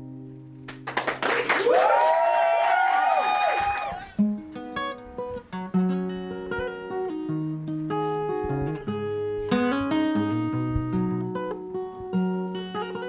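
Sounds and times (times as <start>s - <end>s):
acoustic guitar picked notes: 0.0s - 0.8s, 4.1s - 13.0s
acoustic guitar strumming: 4.1s - 13.0s.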